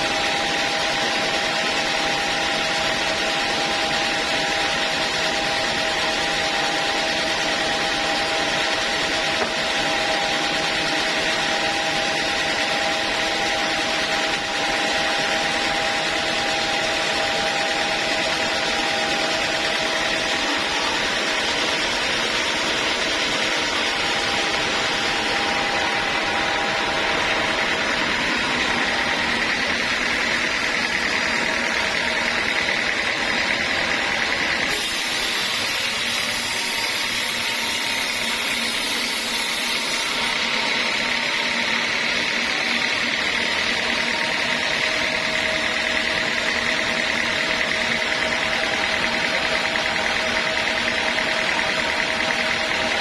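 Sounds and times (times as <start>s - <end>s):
sawmill machinery running: 0.0s - 53.0s
steady tones: 17.3s - 34.4s.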